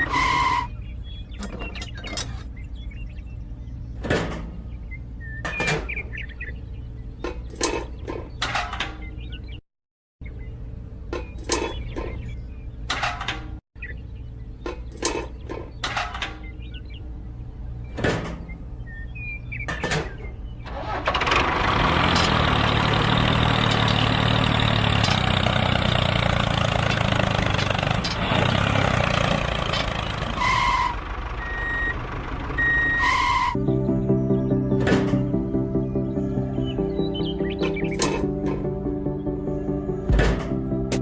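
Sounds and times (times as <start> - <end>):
short beeps: 32.6 - 33.0
sharp knocks: 40.1 - 41.0.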